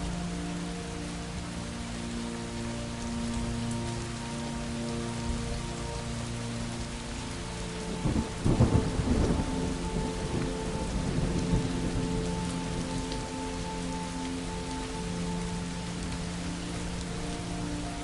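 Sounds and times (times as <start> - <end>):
steady rain falling: 0.0 - 18.0
thunderclap rumbling: 8.0 - 12.0.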